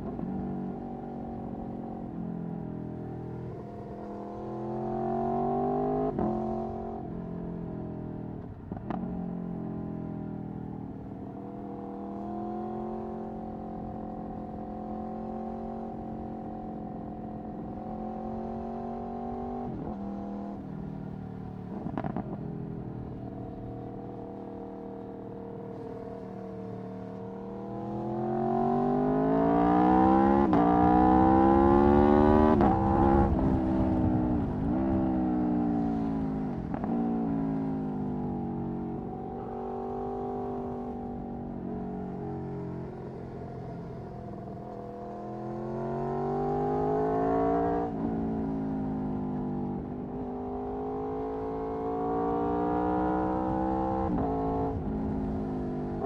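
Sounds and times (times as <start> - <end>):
motorcycle engine revving: 25.8 - 41.8.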